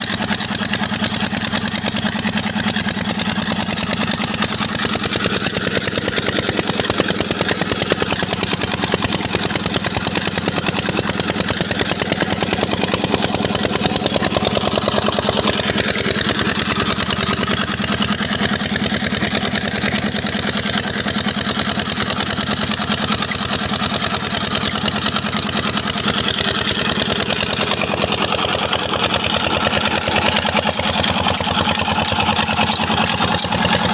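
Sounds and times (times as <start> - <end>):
diesel engine running steadily: 0.0 - 33.9.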